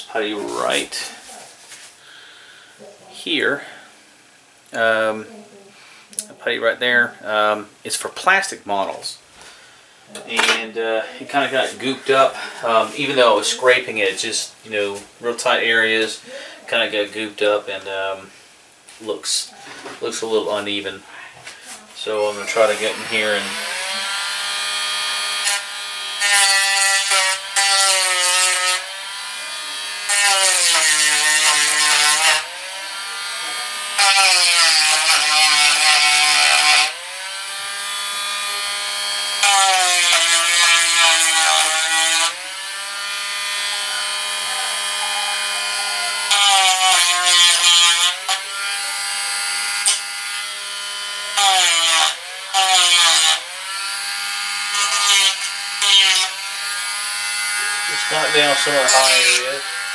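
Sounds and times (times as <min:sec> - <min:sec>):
rough sanding noise: 0:11.3 - 0:16.1, 0:21.7 - 0:24.2, 0:57.6 - 0:59.9.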